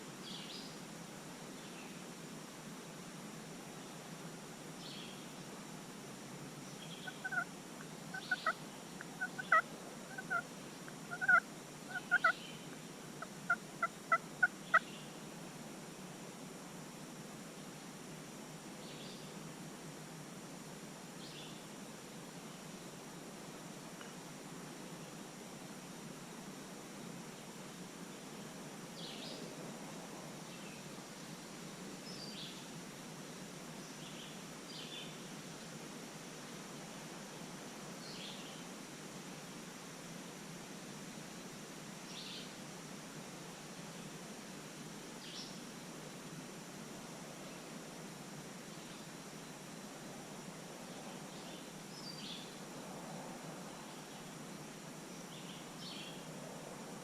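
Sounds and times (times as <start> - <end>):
steady outdoor hiss: 0.0 - 57.0
songbird chirps: 4.8 - 5.5, 6.6 - 15.2, 33.8 - 35.3, 50.9 - 52.6, 55.1 - 56.3
turkey yelping and clucking: 7.2 - 7.4, 8.1 - 8.6, 9.2 - 10.4, 11.1 - 12.4.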